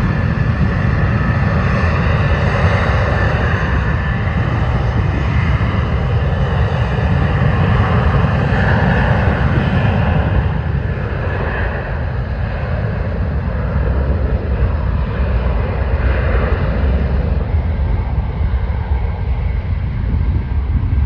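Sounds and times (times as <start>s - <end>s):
jet engines deep rumble: 0.0s - 21.0s.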